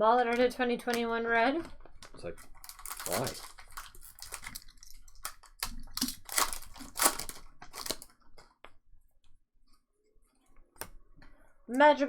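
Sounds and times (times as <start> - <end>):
wrappers tearing and crinkling: 2.4 - 8.2.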